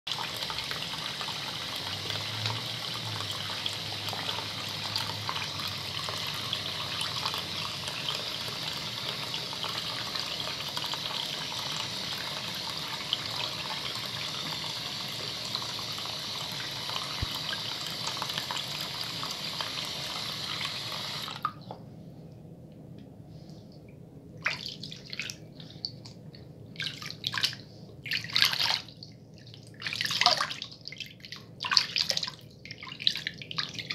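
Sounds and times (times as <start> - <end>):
tap water running: 0.1 - 21.6.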